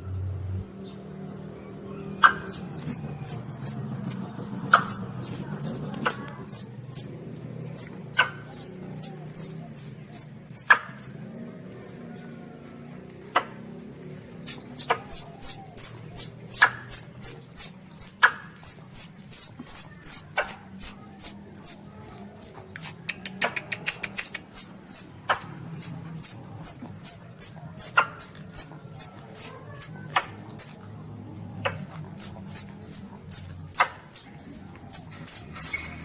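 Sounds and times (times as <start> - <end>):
animal squeaking: 2.0 - 11.2, 14.4 - 36.0.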